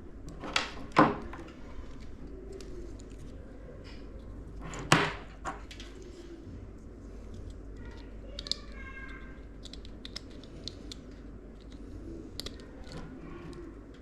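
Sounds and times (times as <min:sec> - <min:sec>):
low room hum: 0:00.0 - 0:14.0
clicks and taps of handling parts: 0:07.3 - 0:14.0.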